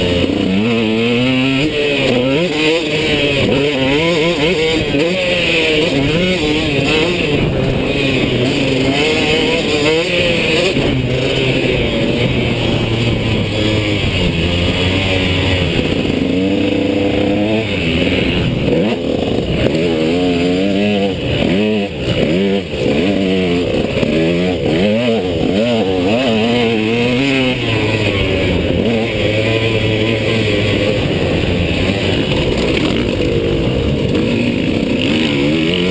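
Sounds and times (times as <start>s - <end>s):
motocross bike engine revving: 0.0s - 35.9s.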